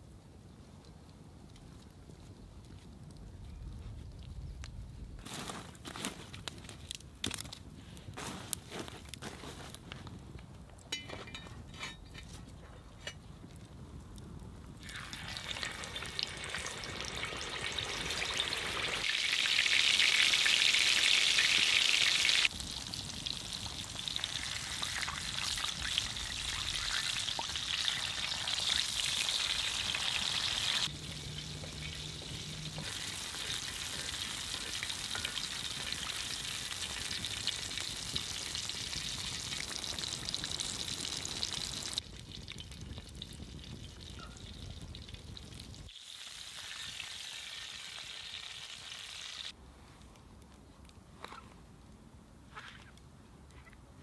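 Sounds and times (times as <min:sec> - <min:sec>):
food sizzling in a pan: 0:14.9 - 0:42.0, 0:45.9 - 0:49.5.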